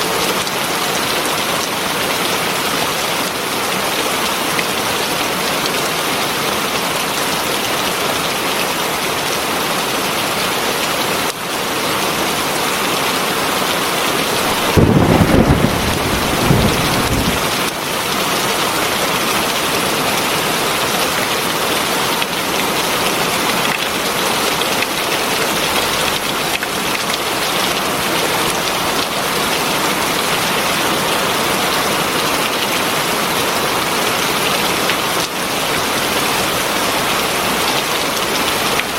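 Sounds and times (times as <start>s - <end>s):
heavy rain falling: 0.0s - 38.9s
thunder rumbling: 14.5s - 17.8s.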